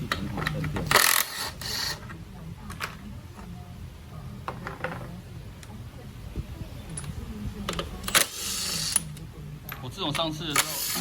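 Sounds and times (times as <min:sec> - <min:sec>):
faint background voices: 0:00.0 - 0:11.0
low steady hum: 0:00.0 - 0:11.0
metal parts clicking: 0:00.1 - 0:02.1, 0:06.9 - 0:11.0.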